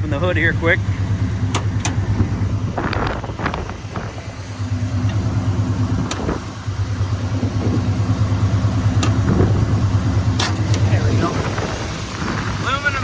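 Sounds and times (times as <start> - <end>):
engine idling: 0.0 - 13.0
hood latch clicks and clunks: 1.4 - 2.0, 5.9 - 6.4, 9.0 - 9.6, 10.4 - 10.9.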